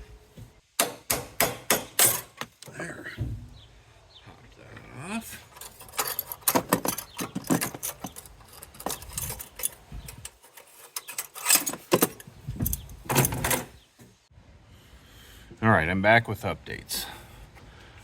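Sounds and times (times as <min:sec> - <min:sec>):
metal tools clinking and rattling: 0:01.9 - 0:02.4, 0:05.4 - 0:13.8.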